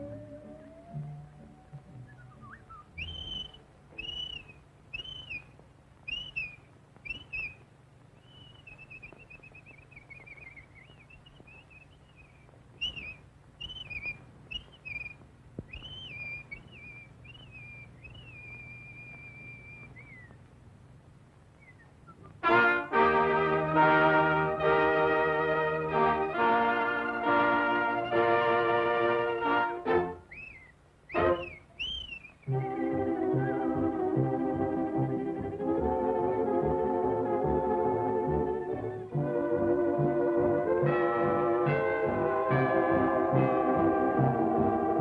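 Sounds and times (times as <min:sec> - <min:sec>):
whistled cartoon bird calls: 0:00.0 - 0:05.5, 0:06.1 - 0:07.6, 0:08.2 - 0:20.4, 0:30.2 - 0:32.6.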